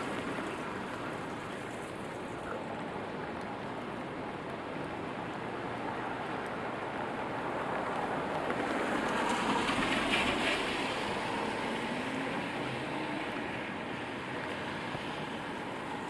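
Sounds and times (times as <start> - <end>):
rain hiss: 0.0 - 16.0
vehicle passing: 8.6 - 16.0.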